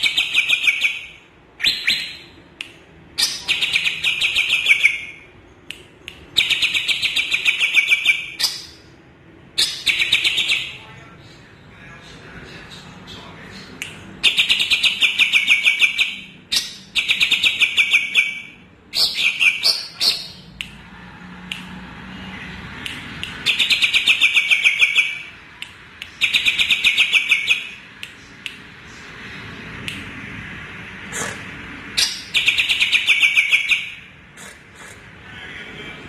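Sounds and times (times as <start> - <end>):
bird singing chattering phrases: 3.2 - 8.9, 9.6 - 10.8, 13.7 - 20.6.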